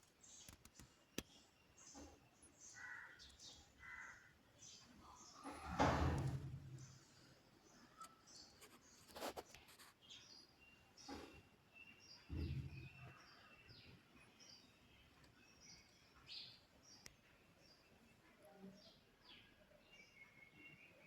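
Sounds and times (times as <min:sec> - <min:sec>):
faint bird chirps: 0:06.8 - 0:21.0.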